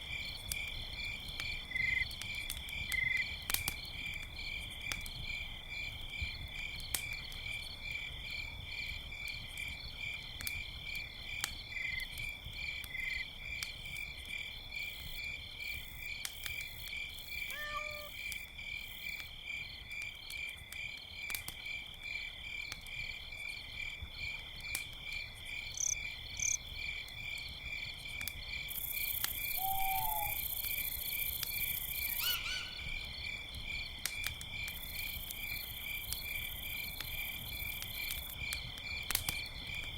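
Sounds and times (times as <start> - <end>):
campfire crackling: 0.0 - 39.9
crickets chirping: 0.1 - 39.9
night creature calls: 17.5 - 18.2, 29.6 - 30.4.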